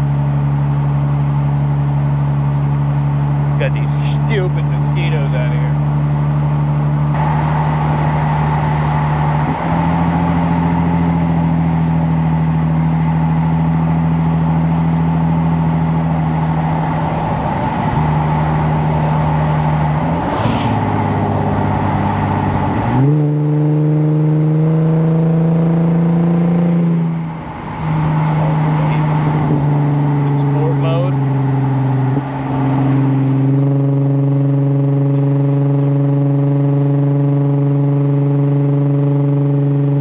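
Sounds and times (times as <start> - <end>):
car exhaust note while driving: 0.0 - 40.0.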